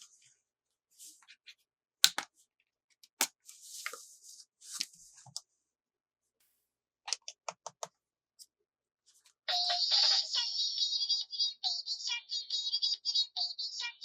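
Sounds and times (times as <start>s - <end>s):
sharp plastic clicks: 2.0s - 2.3s.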